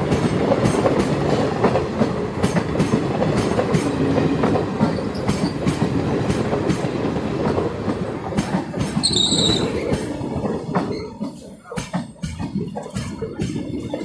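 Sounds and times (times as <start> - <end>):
train wheels clattering over rail joints: 0.0 - 14.0
high-pitched wheel squeal: 9.0 - 9.8.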